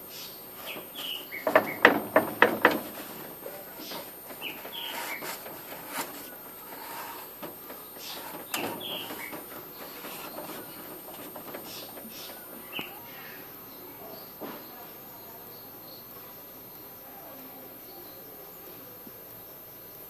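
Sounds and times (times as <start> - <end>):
light clicks and rustles: 0.6 - 12.6.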